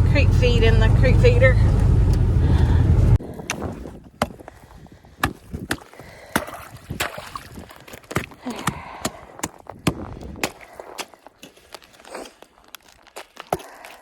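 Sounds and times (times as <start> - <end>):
hand tool chopping ice: 5.2 - 14.0.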